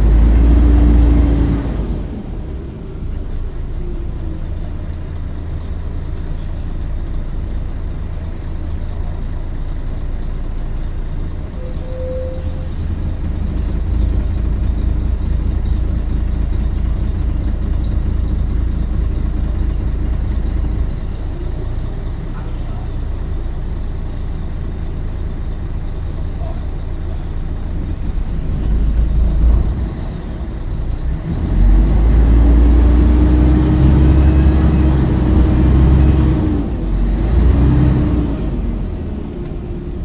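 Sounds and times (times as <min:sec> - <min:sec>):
diesel bus engine rumbling: 0:00.0 - 0:40.0.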